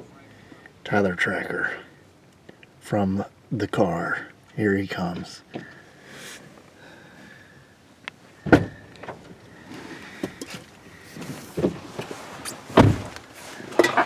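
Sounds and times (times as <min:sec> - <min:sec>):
knocks and thumps inside a car: 0:08.4 - 0:09.3, 0:11.2 - 0:14.0.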